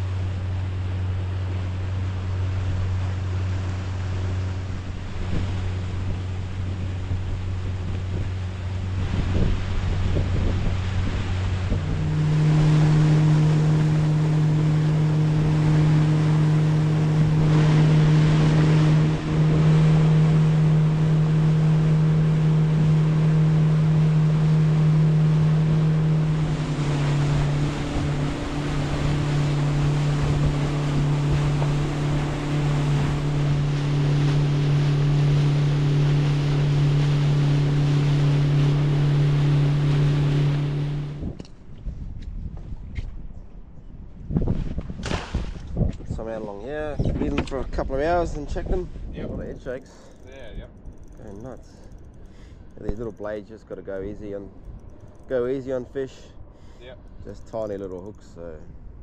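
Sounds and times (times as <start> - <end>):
water rushing past: 0.0 - 41.4
boat motor running: 0.0 - 41.9, 45.8 - 59.0
wind rushing: 7.1 - 41.4.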